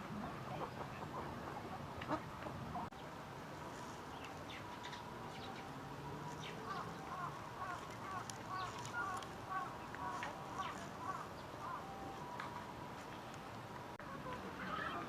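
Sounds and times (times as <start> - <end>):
flock of coots calling: 0.0 - 3.0, 6.3 - 12.6, 14.1 - 15.0
steady background hiss: 0.0 - 15.0.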